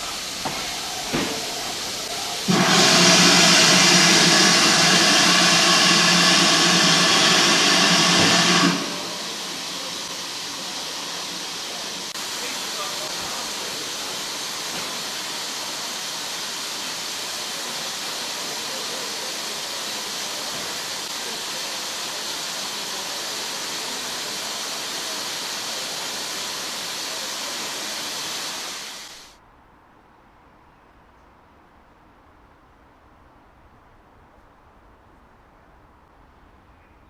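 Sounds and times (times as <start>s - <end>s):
steam locomotive venting steam: 0.0s - 29.4s.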